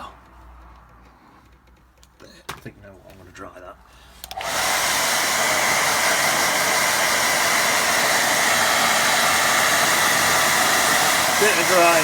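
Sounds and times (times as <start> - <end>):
hair dryer blowing: 4.2 - 12.0.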